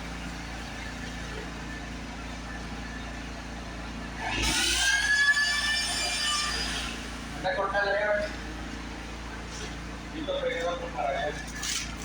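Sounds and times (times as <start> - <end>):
low background hum: 0.0 - 12.0
motor whining: 4.2 - 7.5.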